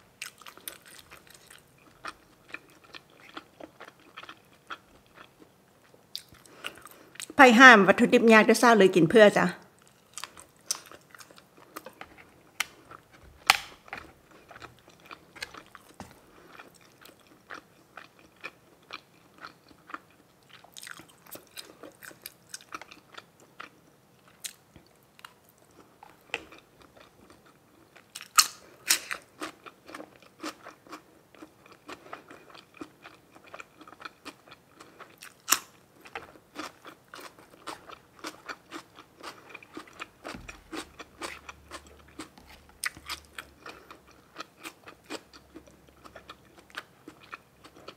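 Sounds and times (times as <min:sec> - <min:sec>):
crunchy bites: 0:12.6 - 0:16.8.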